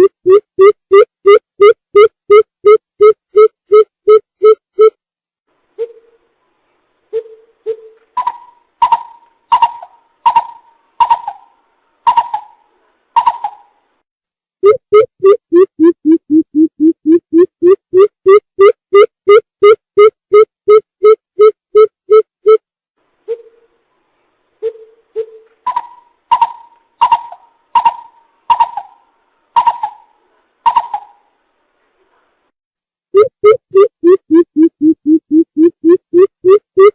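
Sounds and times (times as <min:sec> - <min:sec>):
coucal hooting call: 0:07.2 - 0:13.8, 0:24.7 - 0:31.3.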